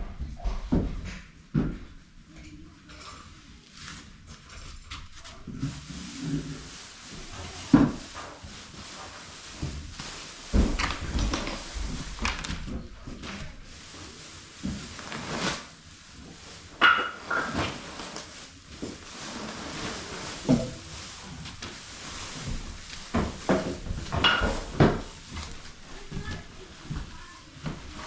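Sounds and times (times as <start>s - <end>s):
knocks and clattering: 22.5s - 25.5s.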